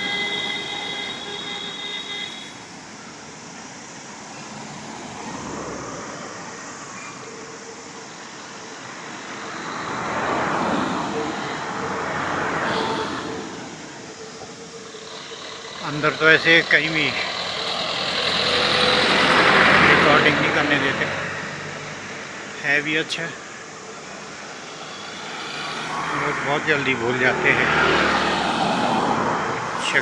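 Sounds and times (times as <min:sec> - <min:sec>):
vehicle horn: 0:00.0 - 0:03.2, 0:09.8 - 0:22.1, 0:24.0 - 0:29.2
engine hum: 0:00.0 - 0:30.0
vehicles passing: 0:00.0 - 0:30.0.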